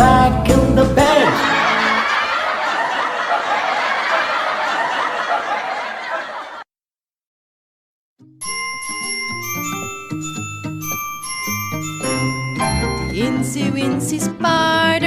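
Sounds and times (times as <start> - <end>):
children giggling and laughing: 1.3 - 6.6
chiming bell-like music: 8.4 - 13.8.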